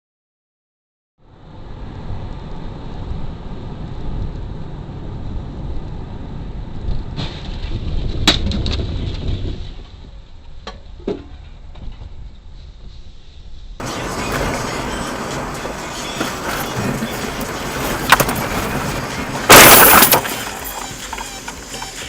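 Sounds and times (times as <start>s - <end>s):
car road and engine rumble: 1.2s - 8.3s, 13.8s - 22.0s
sharp bang: 19.4s - 21.0s.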